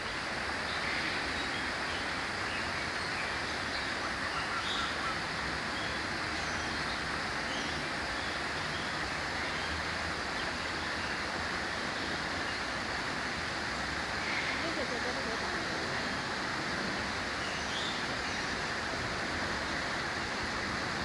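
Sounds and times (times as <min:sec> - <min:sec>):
running water rushing: 0:00.0 - 0:21.0
faint bird calls: 0:03.8 - 0:06.0, 0:14.1 - 0:20.4.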